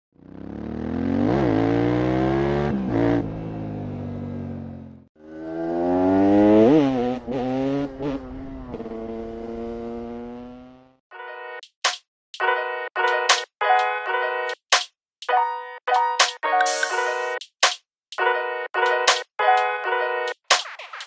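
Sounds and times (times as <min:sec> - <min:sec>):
motorcycle engine revving: 0:00.1 - 0:11.0.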